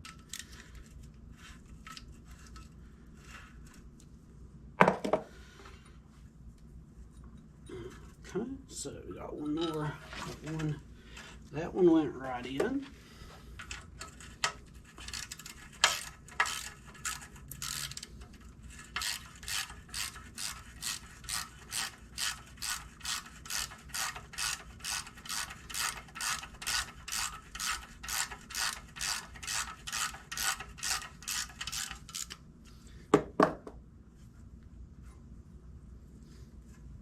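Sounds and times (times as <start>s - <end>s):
ratchet wrench clicking: 13.6s - 32.4s.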